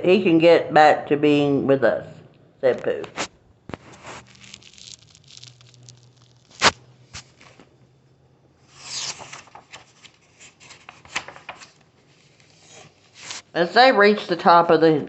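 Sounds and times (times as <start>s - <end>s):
paper rustling: 3.0s - 7.7s, 8.8s - 13.5s.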